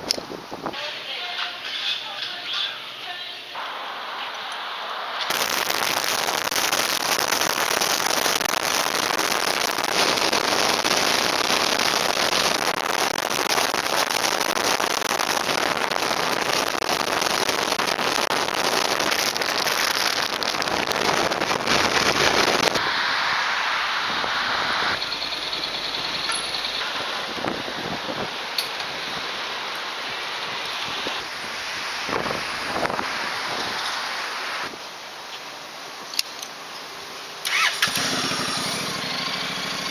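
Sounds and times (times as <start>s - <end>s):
wind buffeting microphone: 30.8s - 33.8s.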